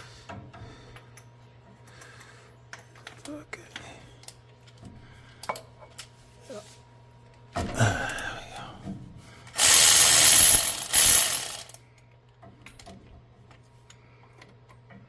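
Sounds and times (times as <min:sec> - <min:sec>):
tools clicking: 0:09.6 - 0:12.9.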